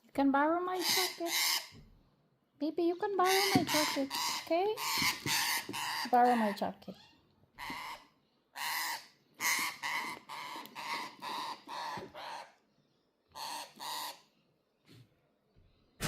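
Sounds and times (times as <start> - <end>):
parrot harsh rasping calls: 0.8 - 1.8, 3.2 - 12.6, 13.3 - 14.3.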